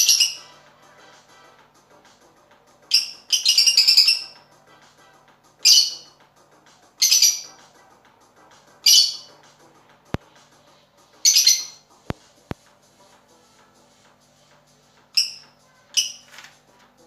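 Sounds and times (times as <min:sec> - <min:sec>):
parrot calling: 0:00.0 - 0:00.6, 0:02.9 - 0:04.4, 0:05.6 - 0:06.2, 0:07.0 - 0:07.5, 0:08.8 - 0:09.4, 0:11.2 - 0:11.8, 0:15.1 - 0:16.3
faint background music: 0:00.0 - 0:17.0.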